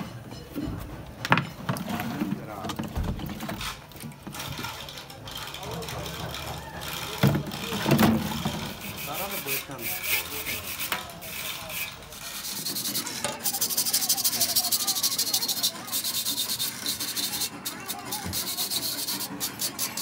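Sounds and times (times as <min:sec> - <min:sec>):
knocks and scrapes on radiator: 0:01.7 - 0:03.6
tool rasping on metal: 0:08.3 - 0:20.0.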